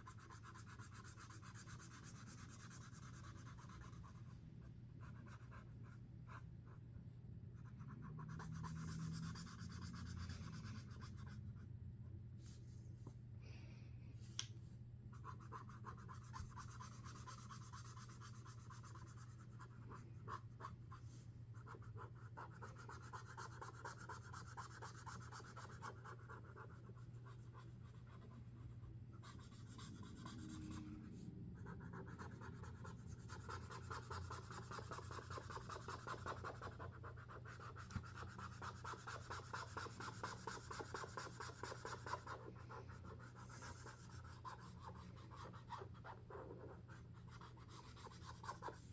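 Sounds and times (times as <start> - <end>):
faint steady low hum: 0.0 - 48.9
marker tips scratching on paper: 32.0 - 48.9.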